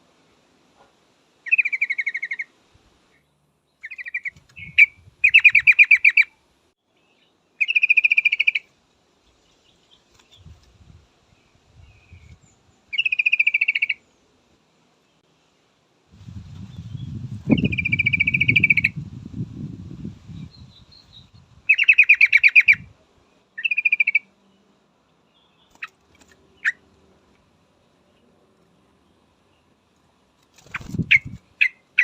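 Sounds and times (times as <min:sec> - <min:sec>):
bird chattering trills: 0:01.5 - 0:02.5, 0:03.8 - 0:06.3, 0:07.6 - 0:08.7, 0:12.9 - 0:14.0, 0:17.5 - 0:19.0, 0:20.6 - 0:22.9, 0:23.6 - 0:24.3.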